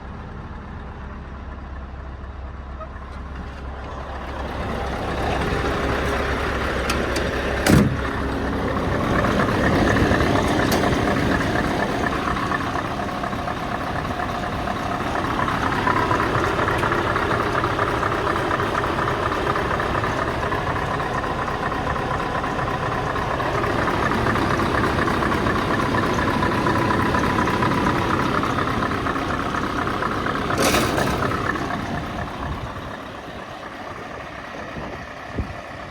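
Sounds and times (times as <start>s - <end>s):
diesel truck engine revving: 3.0s - 35.9s.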